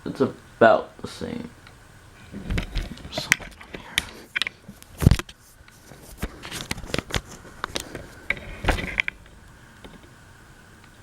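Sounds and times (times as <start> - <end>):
faint steady whine: 0.0 - 11.0
handling clicks and scrapes: 2.3 - 9.2.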